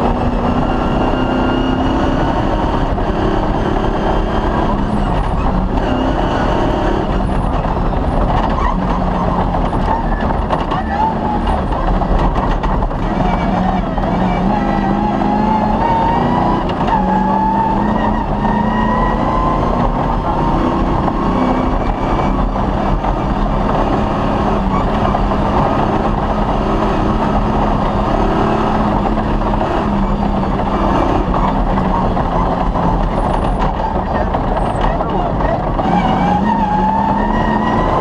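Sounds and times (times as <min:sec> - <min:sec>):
rally car engine running hard: 0:00.0 - 0:38.0.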